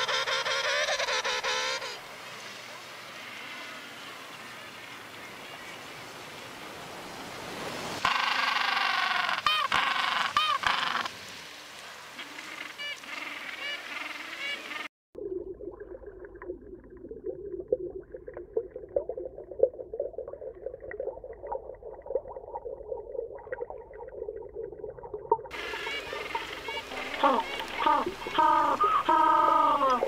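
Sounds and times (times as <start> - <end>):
underwater crackling and bubbling: 15.2 - 30.0
penguin calls: 25.6 - 30.0.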